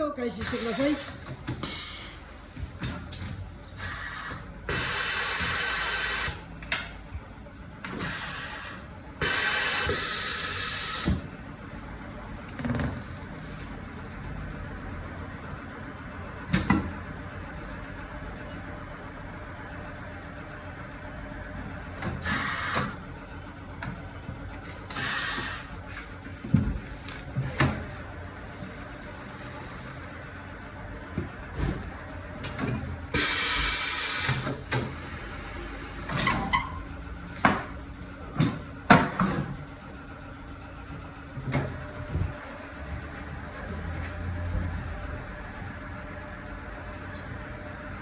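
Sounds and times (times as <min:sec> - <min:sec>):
air tool bursts with hissing: 0:03.8 - 0:06.5, 0:08.0 - 0:11.2, 0:22.2 - 0:22.9, 0:24.9 - 0:25.7, 0:33.1 - 0:35.4.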